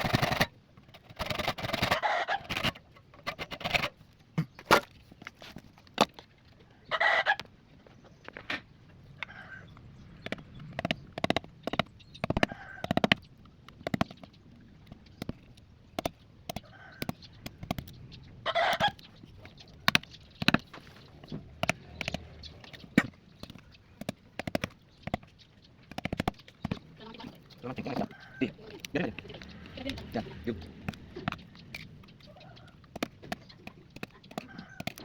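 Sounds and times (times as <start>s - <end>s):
chickens clucking: 1.2s - 5.0s, 6.6s - 13.3s, 16.5s - 35.0s
sharp taps and knocks: 10.2s - 18.0s, 18.8s - 28.1s, 28.8s - 35.0s.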